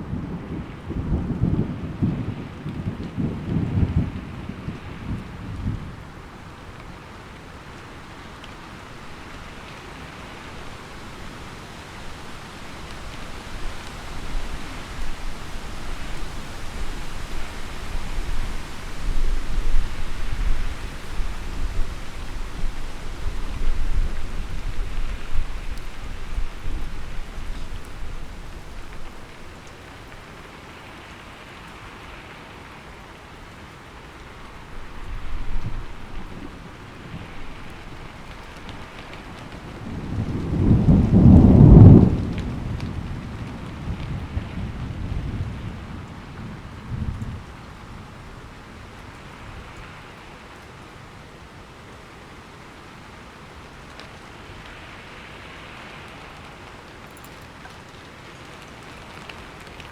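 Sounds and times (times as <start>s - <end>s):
thunder rumbling: 0.0s - 7.0s, 7.7s - 29.8s, 34.5s - 48.2s
heavy rain: 0.0s - 59.9s.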